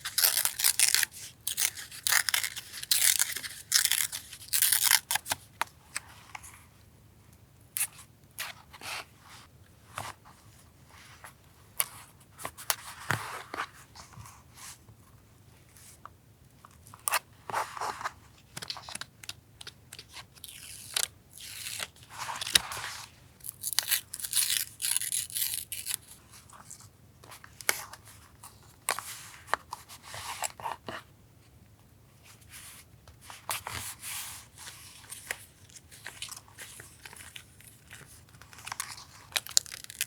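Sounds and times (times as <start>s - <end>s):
paper crinkling and rustling: 33.2s - 40.0s.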